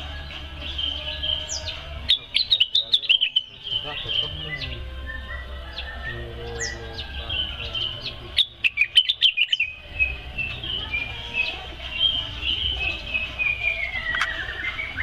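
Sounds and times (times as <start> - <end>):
bird chirping song: 0.0 - 15.0
sharp clicks: 14.1 - 14.4.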